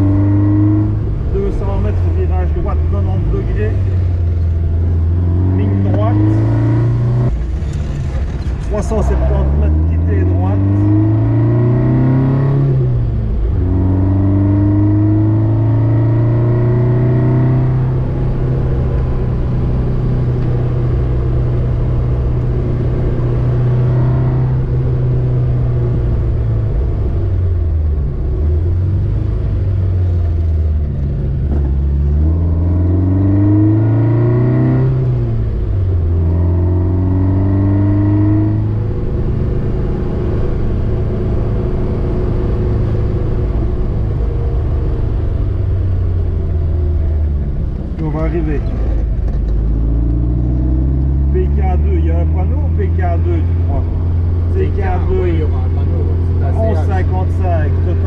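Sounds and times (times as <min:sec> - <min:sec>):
car engine revving: 0:00.0 - 0:58.0
road rumble: 0:00.0 - 0:58.0.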